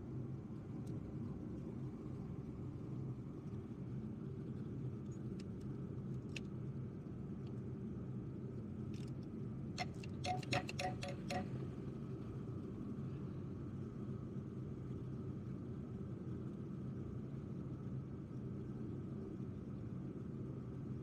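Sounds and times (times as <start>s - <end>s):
low background hum: 0.0s - 21.0s
metallic tool clicks: 9.8s - 11.4s.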